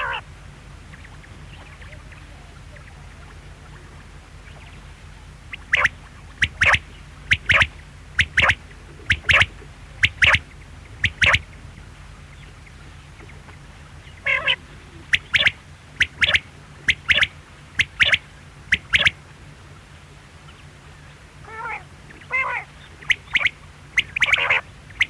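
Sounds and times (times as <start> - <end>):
brief warbled call: 0.0 - 0.3, 5.5 - 11.4, 14.2 - 19.2, 21.4 - 25.0
quail calling: 0.0 - 19.2, 21.4 - 25.0.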